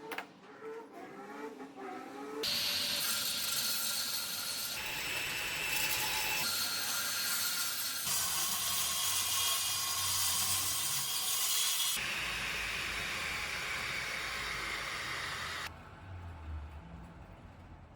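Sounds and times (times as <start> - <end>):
power tool working wood: 2.4 - 15.7.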